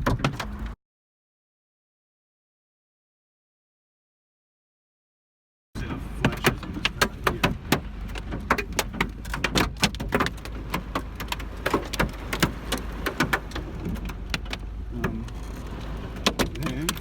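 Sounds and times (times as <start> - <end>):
hailstones clattering on car roof: 6.0 - 17.0.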